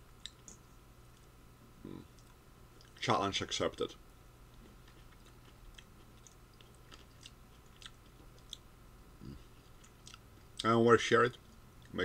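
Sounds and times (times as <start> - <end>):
faint chewing of berries: 4.5 - 10.7.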